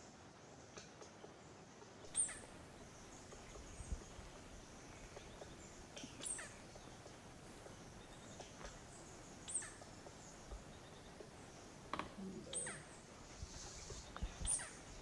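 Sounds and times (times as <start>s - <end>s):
high-pitched hiss: 2.1s - 15.0s.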